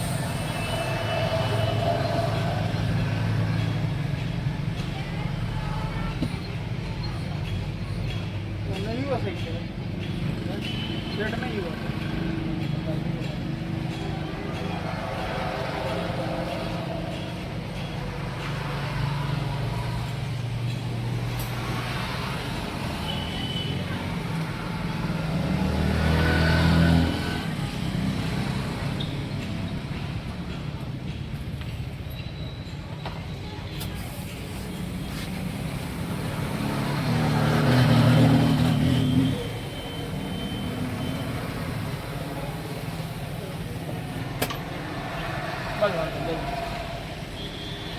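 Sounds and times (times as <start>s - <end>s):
vehicle engine humming: 0.0s - 5.5s, 33.8s - 47.9s.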